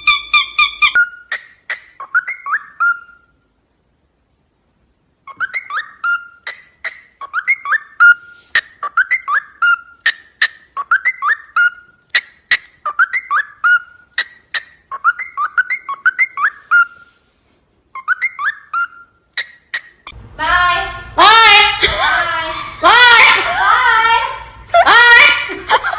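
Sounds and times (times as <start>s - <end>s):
parrot whistling: 0.0s - 3.3s, 5.2s - 17.2s, 17.9s - 20.2s.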